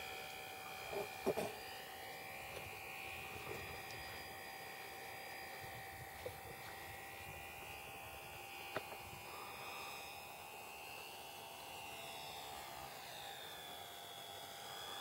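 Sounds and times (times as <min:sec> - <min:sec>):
model aircraft motor whine: 0:00.0 - 0:15.0.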